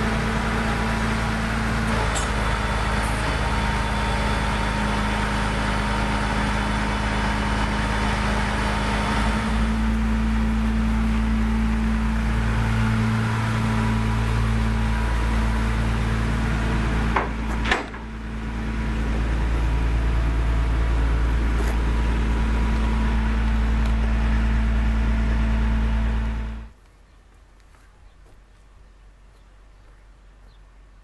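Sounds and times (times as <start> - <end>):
sharp knocks: 17.1 - 18.1.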